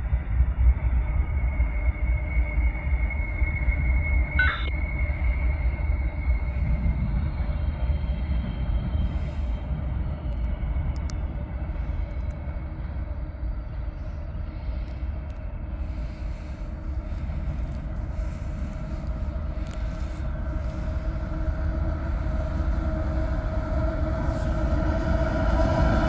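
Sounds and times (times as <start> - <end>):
high wheel squeal: 4.4 - 4.7
freight train rumbling past: 15.8 - 26.0.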